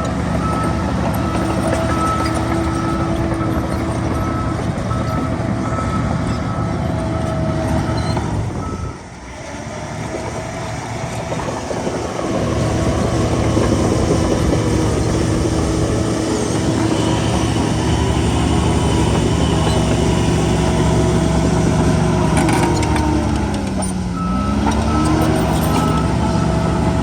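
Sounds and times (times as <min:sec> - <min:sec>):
reversing alarm beeping: 0:00.0 - 0:09.0, 0:24.2 - 0:27.0
diesel engine running: 0:00.0 - 0:27.0.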